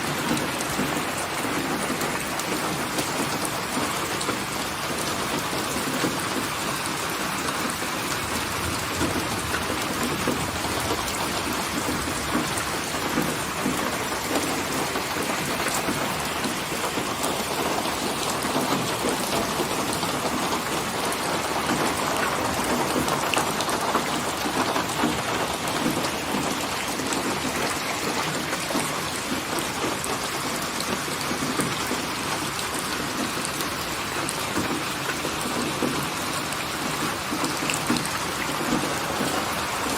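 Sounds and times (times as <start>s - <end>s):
heavy rain: 0.0s - 39.9s
low rumble of thunder: 8.2s - 13.4s.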